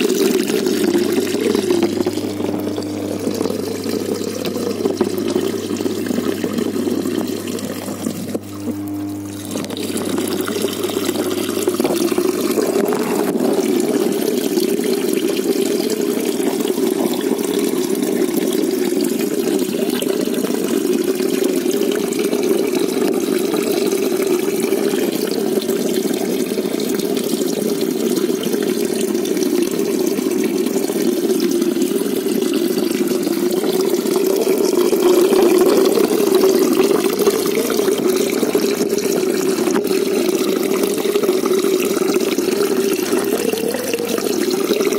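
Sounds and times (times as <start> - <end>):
muffled rush of running water: 0.0 - 44.9.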